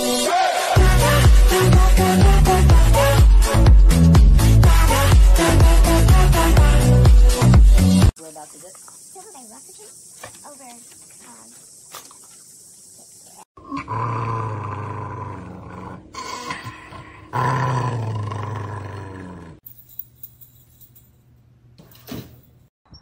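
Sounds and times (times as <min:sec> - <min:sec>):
animal growling cry: 0:13.6 - 0:19.6.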